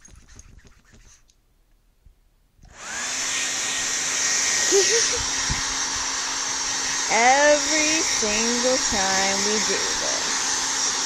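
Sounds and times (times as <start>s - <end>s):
hair dryer blowing with whine: 2.7s - 11.0s.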